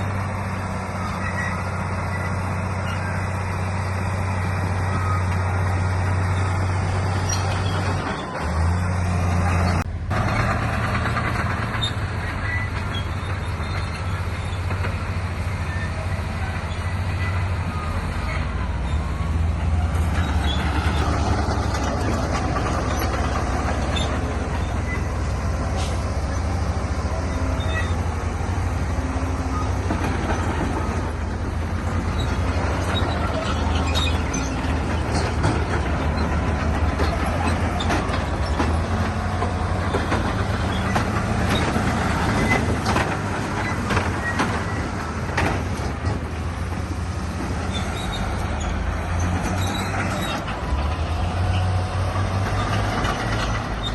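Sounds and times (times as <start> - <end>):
bulldozer diesel engine running: 0.0 - 53.9
tracks and rock clanking: 19.5 - 53.9.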